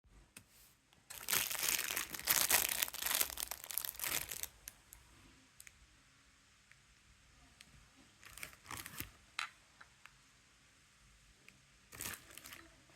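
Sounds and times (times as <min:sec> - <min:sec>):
crinkling and rustling: 0:01.1 - 0:04.8, 0:08.2 - 0:09.6, 0:11.9 - 0:12.7.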